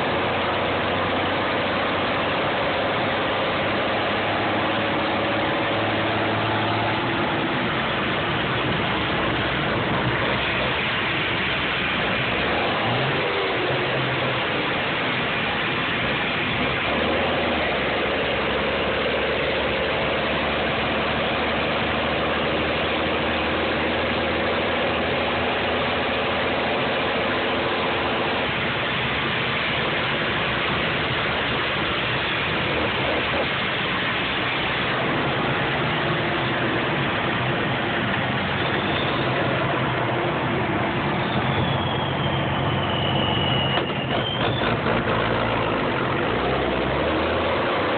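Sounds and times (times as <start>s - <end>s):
diesel truck engine running: 0.0s - 47.9s
turbo whistle: 41.1s - 44.8s.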